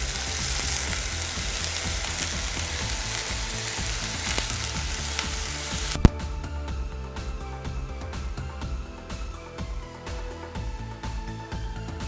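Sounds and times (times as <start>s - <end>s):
oil sizzling in a frying pan: 0.0s - 6.0s.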